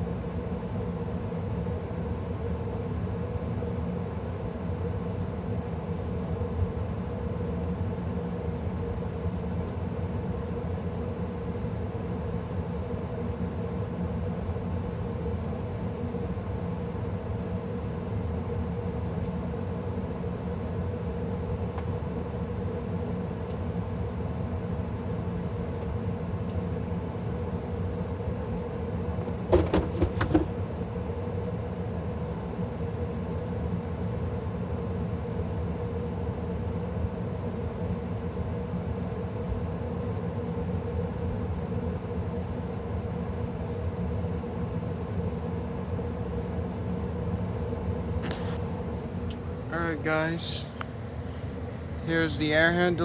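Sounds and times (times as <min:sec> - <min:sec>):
gas furnace humming: 0:27.0 - 0:30.8, 0:48.3 - 0:53.0
sharp knocks or clicks: 0:29.3 - 0:30.5.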